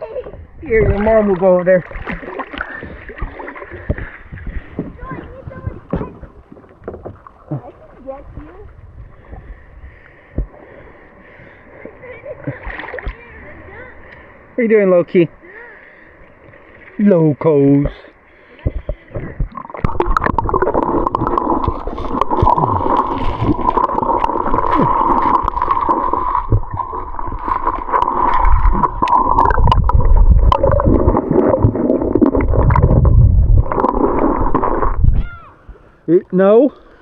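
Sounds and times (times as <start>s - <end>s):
water gurgling and sloshing: 0.0s - 37.0s
deep rumbles: 18.7s - 35.5s.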